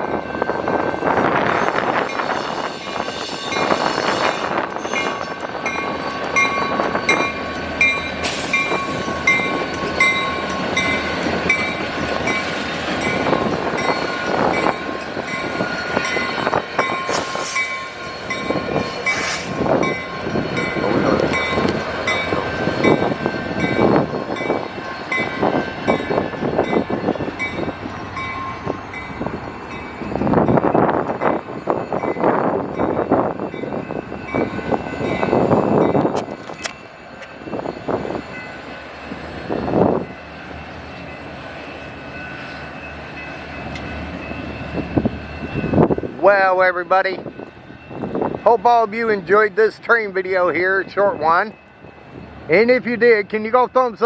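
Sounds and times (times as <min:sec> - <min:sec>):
train bell ringing: 0:00.0 - 0:54.0
train wheels clattering over rails: 0:01.8 - 0:27.7.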